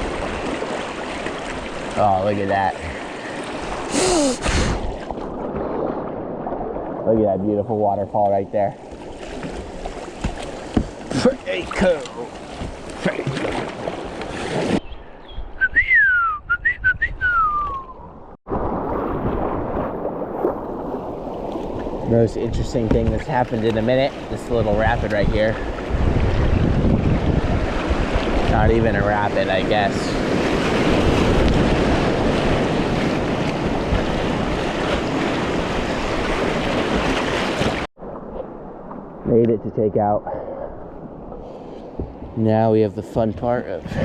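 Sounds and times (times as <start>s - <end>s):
wind noise on microphone: 14.4s - 23.2s, 24.4s - 39.6s, 43.2s - 44.0s
person whistling: 15.6s - 18.0s.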